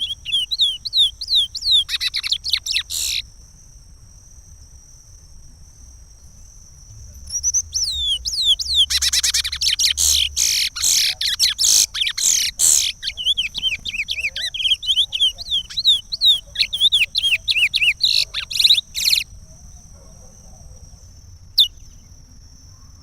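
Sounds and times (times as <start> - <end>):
finch whistling song: 0.0 - 3.2, 7.2 - 19.3.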